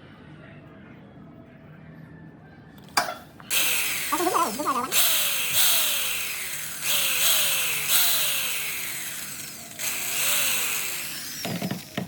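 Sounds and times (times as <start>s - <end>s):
power tool motor revving: 3.4s - 12.0s.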